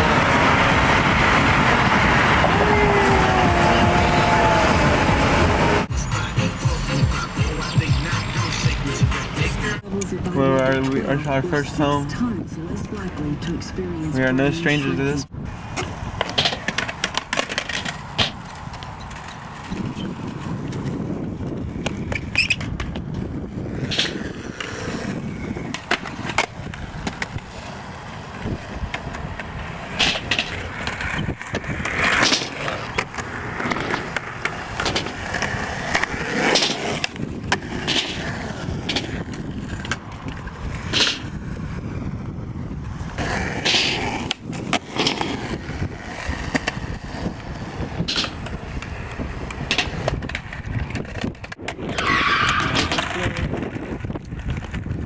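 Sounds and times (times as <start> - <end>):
skateboard wheels rolling: 0.0 - 9.8, 14.4 - 55.0.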